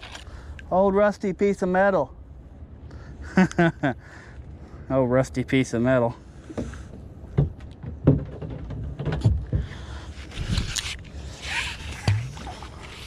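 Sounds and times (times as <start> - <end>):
knocks and bumps of gear: 6.5 - 13.0
rustling or splashing: 9.7 - 13.0.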